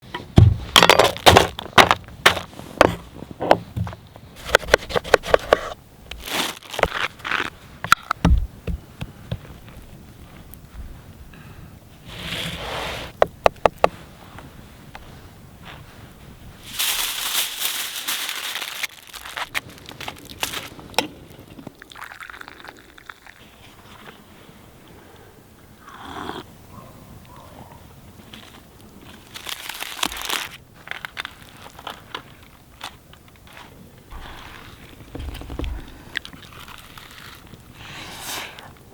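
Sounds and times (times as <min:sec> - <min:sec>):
aluminium foil crinkling: 0:06.1 - 0:07.5, 0:16.6 - 0:23.4, 0:28.4 - 0:33.5, 0:34.3 - 0:37.7.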